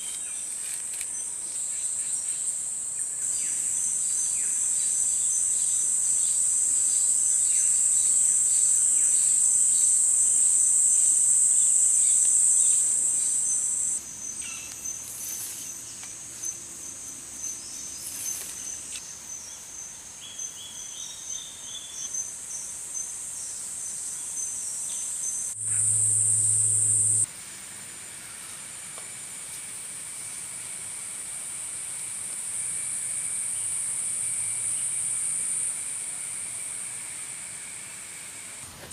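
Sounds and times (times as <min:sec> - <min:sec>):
high-pitched insect chorus: 0:00.0 - 0:38.8
faint bird chirps: 0:12.0 - 0:27.3
thin steady tone: 0:24.0 - 0:27.4.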